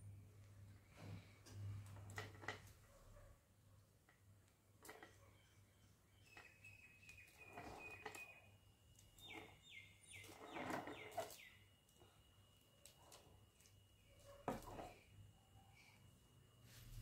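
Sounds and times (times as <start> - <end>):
faint bird whistling: 5.2 - 8.6.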